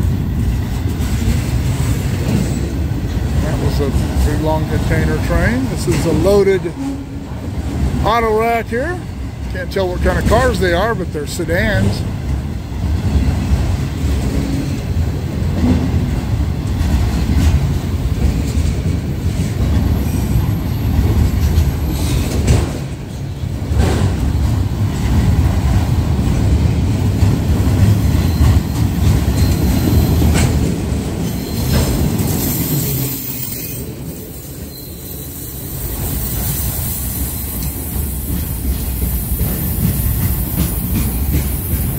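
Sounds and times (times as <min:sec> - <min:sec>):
wheels clacking over rail joints: 0:00.0 - 0:34.4, 0:35.8 - 0:41.9
freight cars rumbling on rails: 0:00.0 - 0:41.9.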